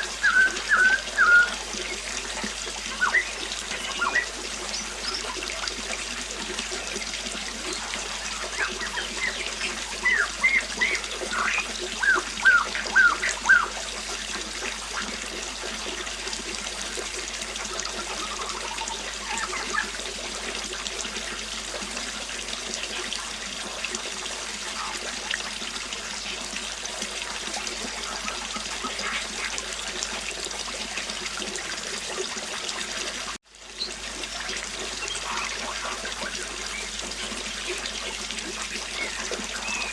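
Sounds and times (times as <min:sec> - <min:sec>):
small birds chirping: 0:00.0 - 0:05.8, 0:06.7 - 0:13.8, 0:18.0 - 0:20.0, 0:34.9 - 0:39.9
river water flowing: 0:00.0 - 0:39.9.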